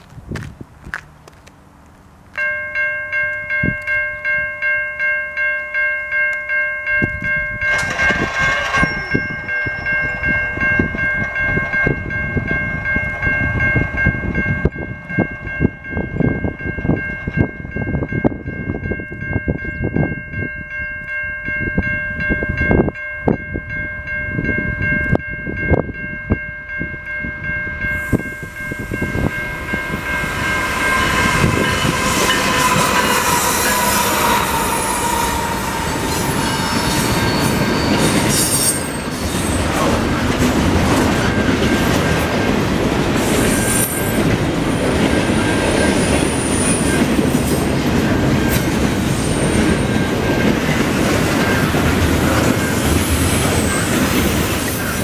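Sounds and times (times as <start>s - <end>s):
diesel locomotive engines: 0.0s - 55.0s
railway crossing bell ringing: 2.3s - 55.0s
train wheel clicks: 7.0s - 13.2s.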